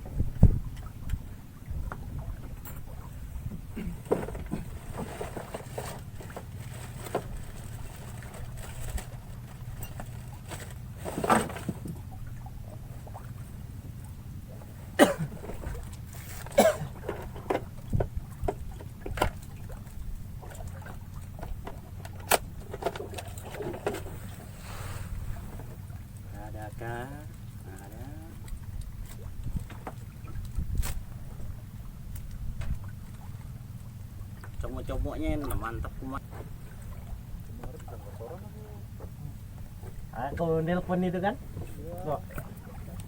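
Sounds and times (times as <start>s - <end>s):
knocks on boat: 0.0s - 1.2s, 3.5s - 5.6s, 11.0s - 12.1s, 16.5s - 19.4s, 32.5s - 32.9s
boat creaking: 0.0s - 43.0s
water and wind against hull: 0.0s - 43.0s.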